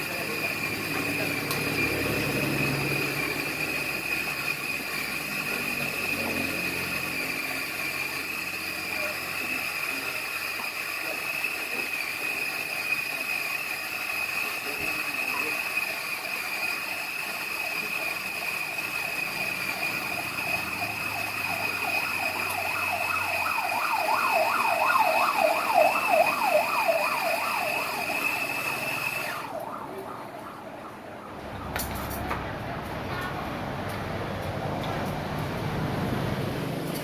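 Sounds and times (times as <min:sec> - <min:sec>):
high-pitched whine: 0:00.0 - 0:10.1, 0:17.6 - 0:32.9
siren warbling: 0:00.6 - 0:07.6, 0:17.8 - 0:33.1.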